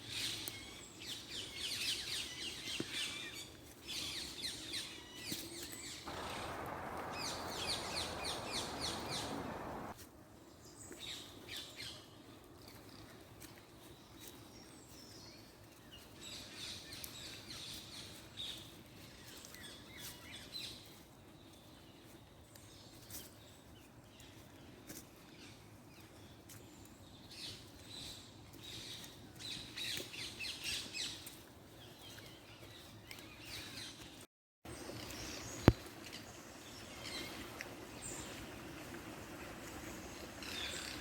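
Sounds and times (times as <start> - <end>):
small birds chirping: 6.0 - 10.0
steady low hum: 6.1 - 9.9.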